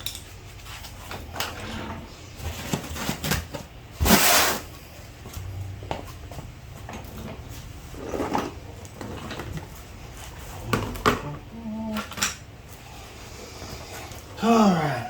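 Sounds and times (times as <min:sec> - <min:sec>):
objects clicking and knocking: 0:00.0 - 0:00.4.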